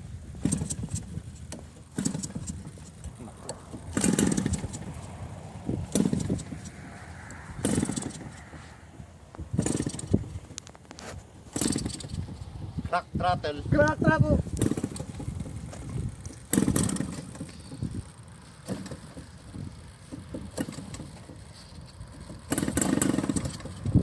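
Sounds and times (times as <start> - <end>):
model airplane engine running unevenly: 0.2 - 6.8, 14.4 - 24.0.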